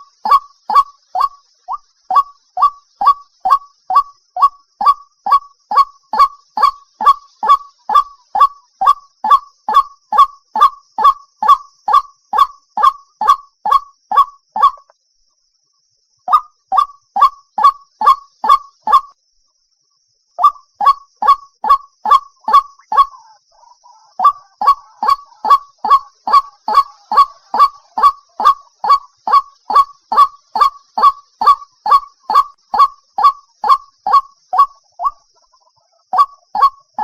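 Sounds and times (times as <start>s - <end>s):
waterhen honking calls: 20.4s - 35.2s, 36.1s - 37.0s.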